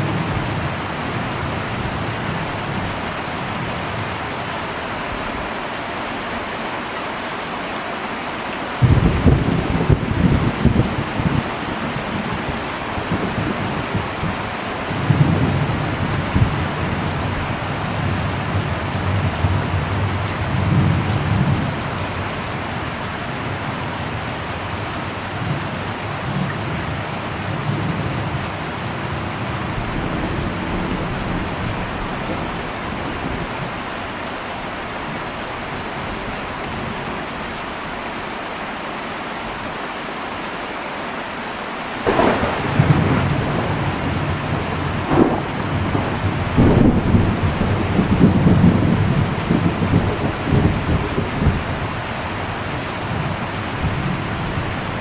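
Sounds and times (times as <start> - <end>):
heavy rain on a metal roof: 0.0 - 55.0
distant thunder rolling: 8.8 - 22.8, 42.0 - 55.0.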